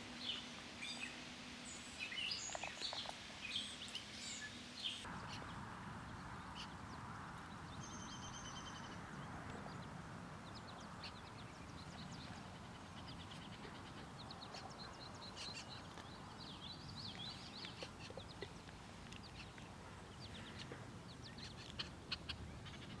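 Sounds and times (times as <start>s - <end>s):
steady background hiss: 0.0s - 9.2s
birds chirping and singing: 0.0s - 23.0s.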